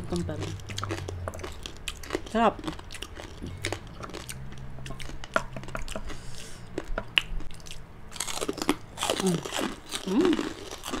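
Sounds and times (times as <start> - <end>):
chewing and crunching crispy food: 0.0 - 11.0
crisp cracks of bites: 6.8 - 11.0.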